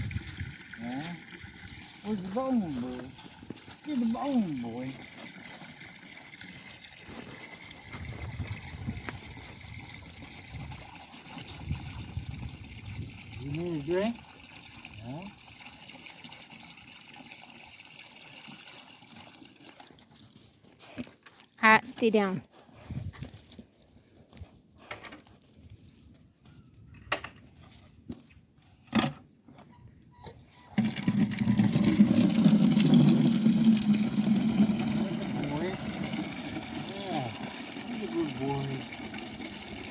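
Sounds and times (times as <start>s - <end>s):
water trickling and sloshing: 0.0s - 21.1s.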